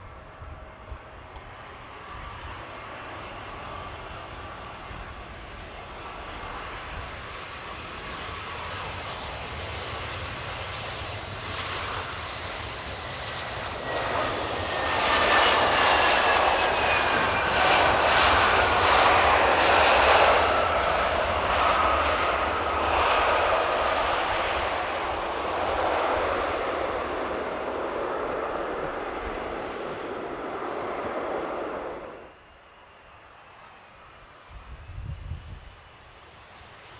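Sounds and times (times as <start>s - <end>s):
jet engine whine passing: 0.5s - 36.9s
wind rumble on microphone: 34.5s - 36.7s.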